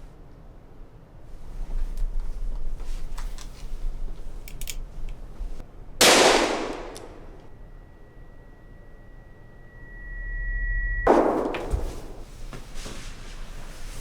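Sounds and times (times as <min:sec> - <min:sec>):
loud gunshot: 0:06.0 - 0:07.3, 0:11.1 - 0:12.3
high ringing tone: 0:07.1 - 0:12.3.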